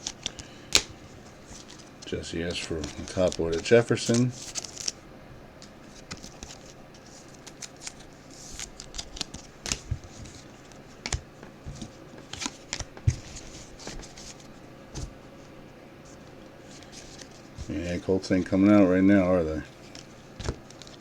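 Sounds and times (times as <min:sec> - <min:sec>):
trading cards clicking and swishing: 0:00.0 - 0:05.0.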